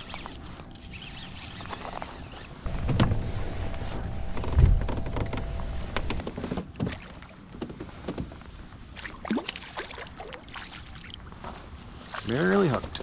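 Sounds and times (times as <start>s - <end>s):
knocks and clicks in boat: 2.7s - 6.6s.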